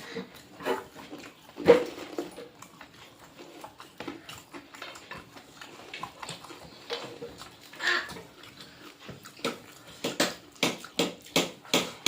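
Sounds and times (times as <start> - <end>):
chewing mouth noises: 0.0 - 12.0.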